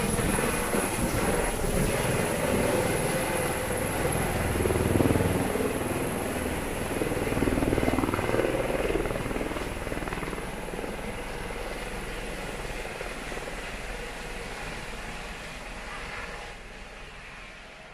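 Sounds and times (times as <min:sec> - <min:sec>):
helicopter rotor and engine: 0:00.0 - 0:17.9.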